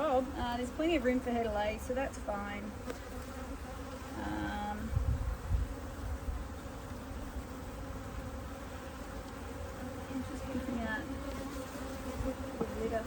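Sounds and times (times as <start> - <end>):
honeybee colony hum: 0.0 - 13.0
louder pitched bee buzz: 0.0 - 13.0.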